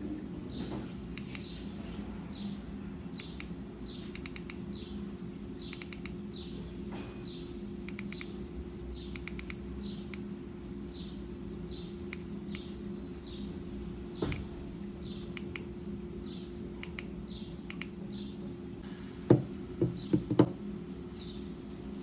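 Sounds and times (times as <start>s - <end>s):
steady low hum: 0.0s - 22.0s
small bird chirping: 3.2s - 5.0s.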